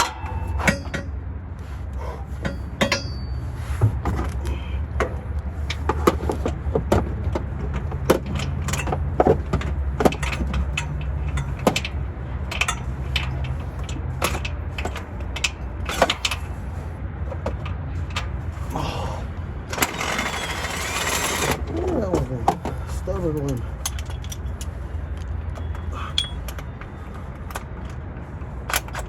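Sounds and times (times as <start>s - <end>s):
steady low rumble: 0.0s - 19.8s
hand tools clicking on bolts: 7.7s - 16.6s, 19.7s - 24.8s, 25.5s - 27.9s.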